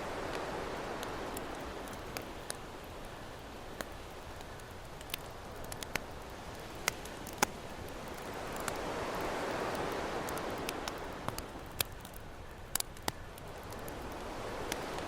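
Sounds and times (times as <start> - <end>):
ocean waves: 0.0 - 12.8, 13.4 - 15.0
campfire crackling: 0.0 - 15.0.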